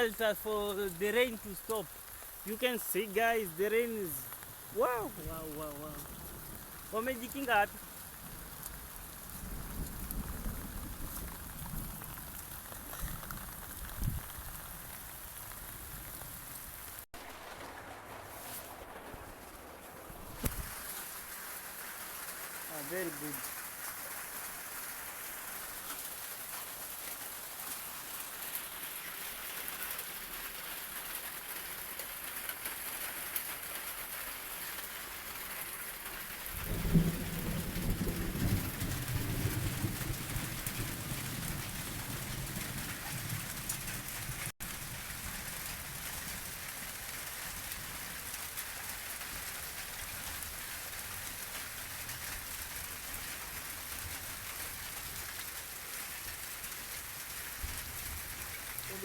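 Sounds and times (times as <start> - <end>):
steady rain falling: 0.0 - 59.0
low rumble of thunder: 7.7 - 16.5, 17.2 - 20.8, 36.5 - 47.0.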